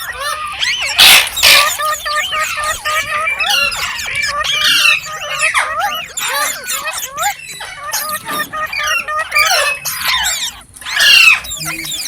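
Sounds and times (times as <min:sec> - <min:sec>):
harsh parrot squawks: 0:00.0 - 0:12.0
parrots chirping: 0:00.0 - 0:12.0.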